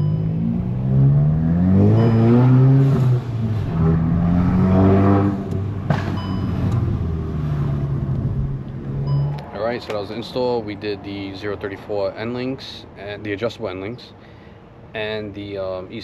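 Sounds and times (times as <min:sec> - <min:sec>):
car engine accelerating: 0:00.0 - 0:09.8.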